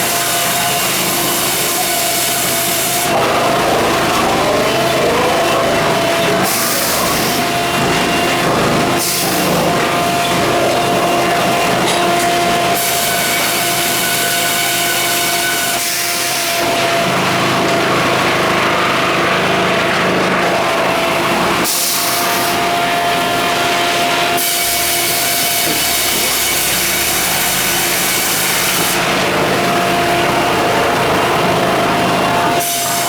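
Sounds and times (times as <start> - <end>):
sawmill saw humming: 0.0 - 33.0
saw cutting hiss: 4.3 - 11.2, 21.6 - 29.2.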